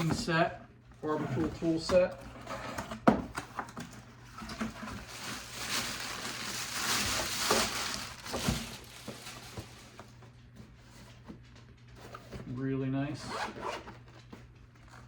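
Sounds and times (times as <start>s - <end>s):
packaging rustling: 3.4s - 10.3s.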